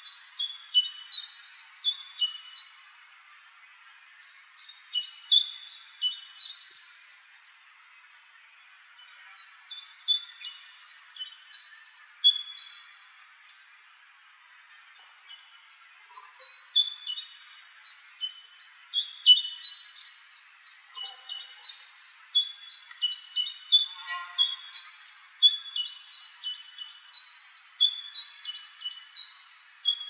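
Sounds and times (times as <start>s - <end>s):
distant bird chorus: 0.0s - 30.0s.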